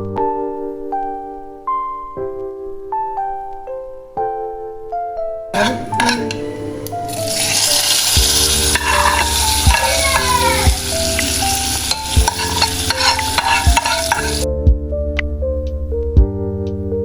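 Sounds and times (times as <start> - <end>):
food sizzling in hot oil: 5.6 - 14.5.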